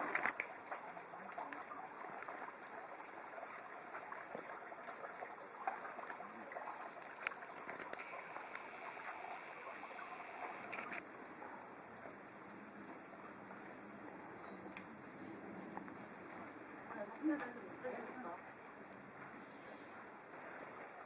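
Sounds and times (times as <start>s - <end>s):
stream flowing: 0.0s - 21.0s
sharp clicks: 10.5s - 11.0s.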